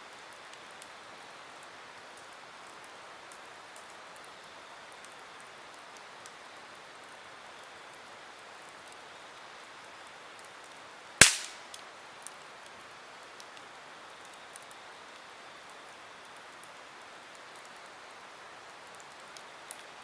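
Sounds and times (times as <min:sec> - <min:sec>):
campfire burning with hiss: 0:00.0 - 0:20.0
crackling wood pop: 0:11.2 - 0:11.7.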